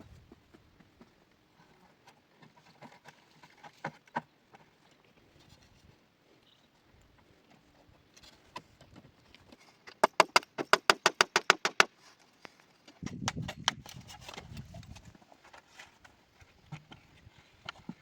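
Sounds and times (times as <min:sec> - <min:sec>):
fast sharp knocks: 0:10.0 - 0:11.9.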